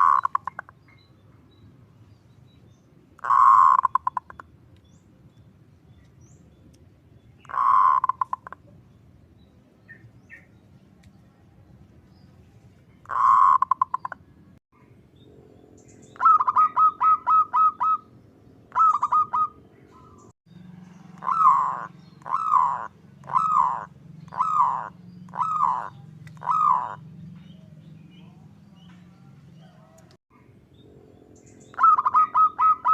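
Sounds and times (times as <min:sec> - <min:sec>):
dove calling: 0:00.0 - 0:01.0, 0:03.2 - 0:04.5, 0:07.4 - 0:08.9, 0:13.0 - 0:14.3, 0:15.7 - 0:32.9.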